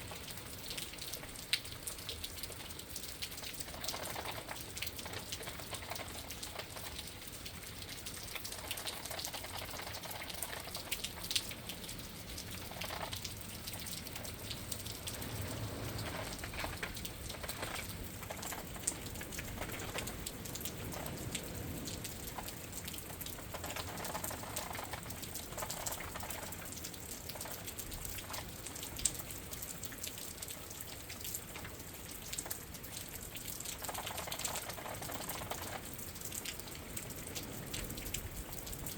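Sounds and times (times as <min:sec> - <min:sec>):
rain pattering on window: 0:00.0 - 0:38.9
wind whooshing: 0:14.7 - 0:17.8.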